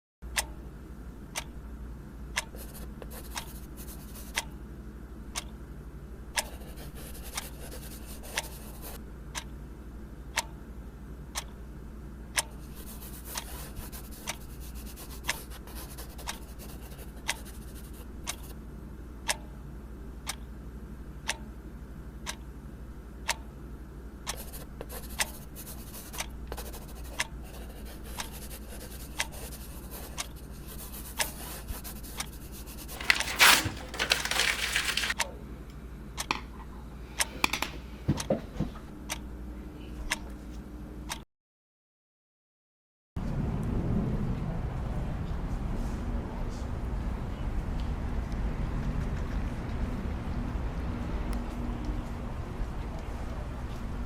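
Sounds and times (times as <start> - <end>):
faint scratching: 32.8 - 35.2.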